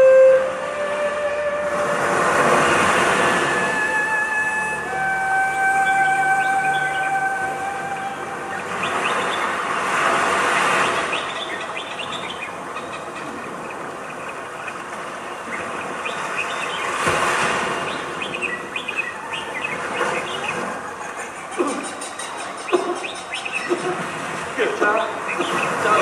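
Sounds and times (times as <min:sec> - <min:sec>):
hissy noise: 0:00.0 - 0:11.4
birds chirping: 0:01.3 - 0:26.0.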